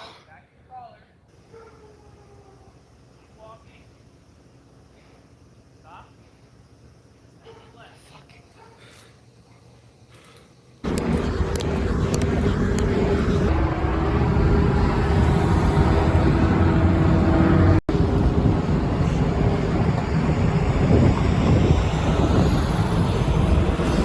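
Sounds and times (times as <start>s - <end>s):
vehicle noise: 10.8s - 24.0s.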